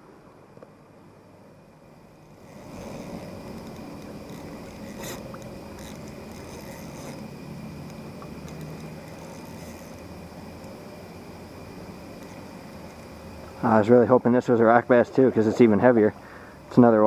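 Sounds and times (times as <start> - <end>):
river water flowing: 0.0 - 17.0
fishing reel clicking: 2.2 - 13.8.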